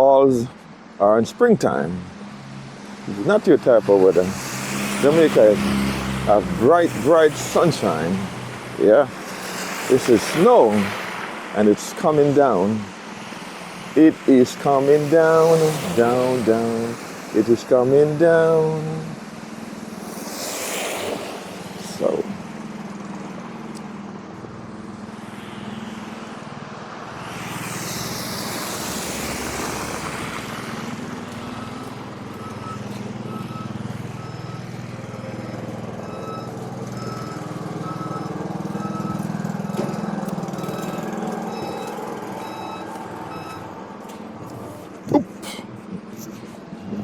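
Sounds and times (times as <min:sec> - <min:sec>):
rush of noise: 0:24.4 - 0:31.2
backup alarm beeping: 0:31.5 - 0:43.8.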